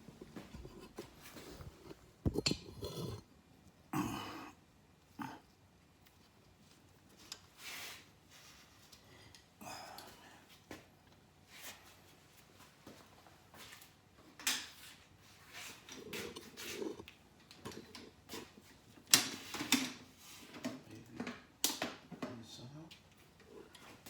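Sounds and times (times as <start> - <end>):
hand tools and metal parts clanking: 0.0 - 3.2.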